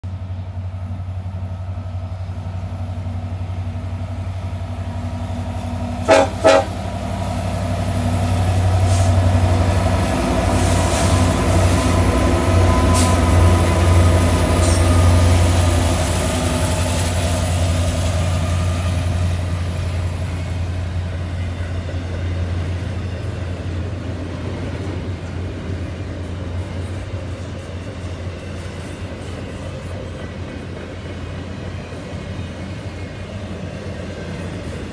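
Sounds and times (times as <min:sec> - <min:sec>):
train horn taps: 0:06.0 - 0:06.8.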